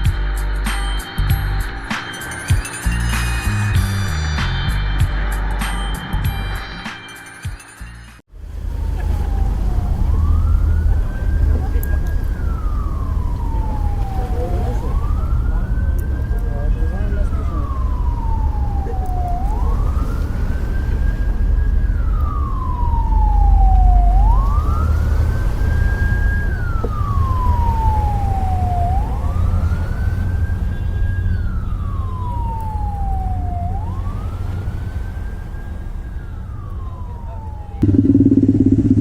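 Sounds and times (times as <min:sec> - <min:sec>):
police siren wailing: 0:08.4 - 0:39.0
low rumble: 0:37.6 - 0:39.0.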